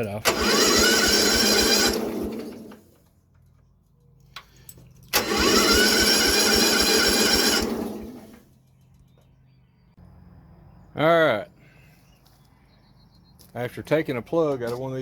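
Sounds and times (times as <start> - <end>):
electric starter cranking engine: 0.2 - 3.0, 5.1 - 8.5.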